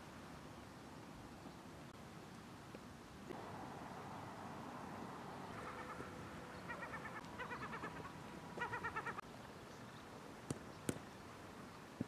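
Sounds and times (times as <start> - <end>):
bird calling faintly: 5.3 - 12.0.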